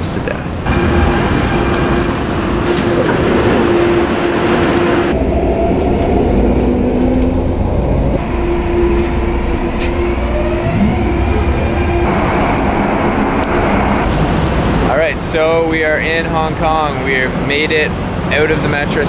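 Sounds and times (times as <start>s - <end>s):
train low rumble: 0.0s - 19.0s.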